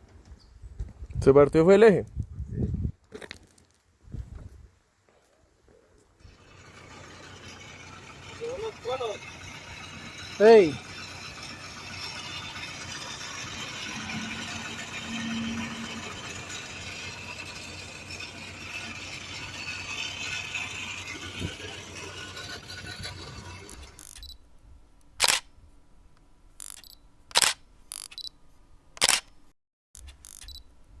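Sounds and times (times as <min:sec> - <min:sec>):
camera shutter clicks: 0:25.2 - 0:25.5, 0:26.6 - 0:28.3, 0:29.0 - 0:29.4, 0:30.0 - 0:30.6.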